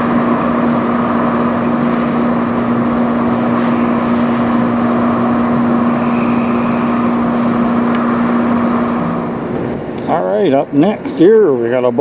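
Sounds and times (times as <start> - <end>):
constant low hum: 0.0 - 12.0
loud rushing engine noise: 0.0 - 12.0.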